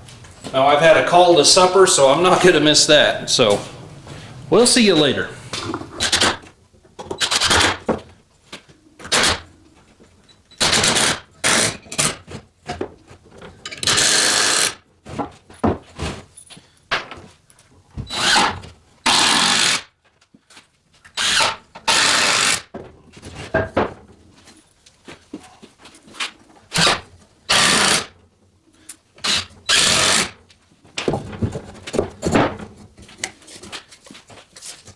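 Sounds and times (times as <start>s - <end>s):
power tool bursts: 7.2s - 7.8s, 10.6s - 12.1s, 13.8s - 14.8s, 18.1s - 19.9s, 21.2s - 22.7s, 26.7s - 28.1s, 29.2s - 30.4s.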